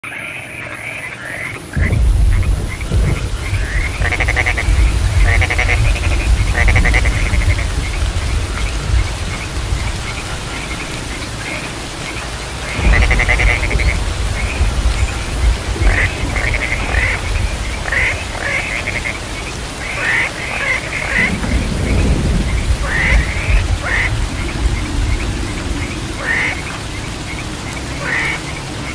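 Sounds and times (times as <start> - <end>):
frogs croaking in chorus: 0.0 - 28.9
low rumble: 1.8 - 11.2, 12.4 - 19.7.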